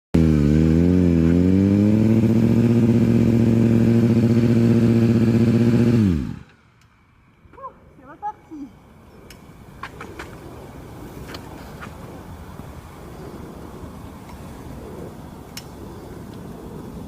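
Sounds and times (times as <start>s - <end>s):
motorcycle engine at high revs: 0.2s - 6.6s.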